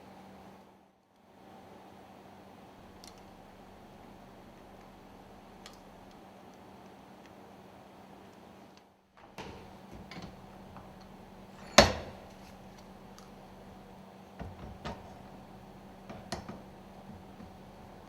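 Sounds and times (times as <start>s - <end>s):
light metal clicks: 2.8s - 6.2s, 9.2s - 18.0s
loud metal knock ringing: 9.4s - 18.0s.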